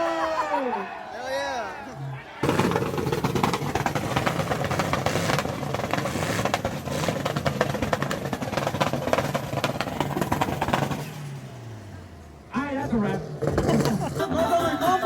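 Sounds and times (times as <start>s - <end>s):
truck engine running hard: 2.4s - 14.7s.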